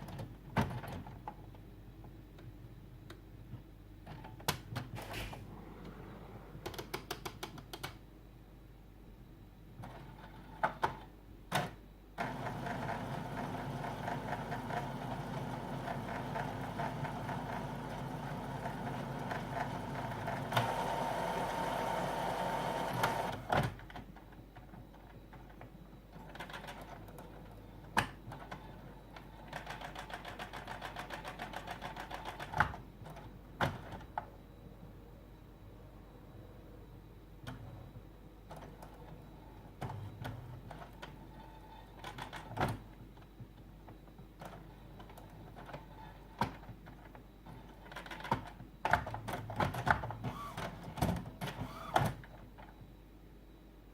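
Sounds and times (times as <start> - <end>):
printer mechanism running: 12.2 - 23.9, 47.6 - 52.8.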